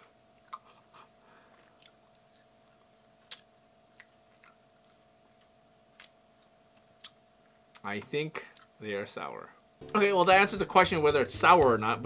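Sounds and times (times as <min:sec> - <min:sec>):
faint hum: 0:00.0 - 0:10.8
mouth clicks chewing gum: 0:00.4 - 0:07.9.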